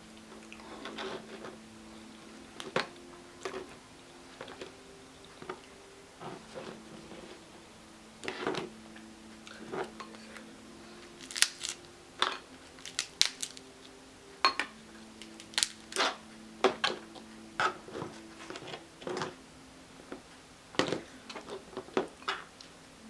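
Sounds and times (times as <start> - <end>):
crab shells cracking: 11.2 - 11.9, 12.7 - 13.7, 15.2 - 16.1.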